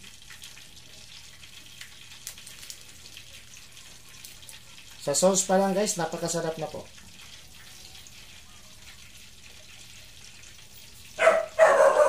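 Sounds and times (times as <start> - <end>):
food sizzling in oil: 0.0 - 12.0
dog barking: 11.2 - 12.0.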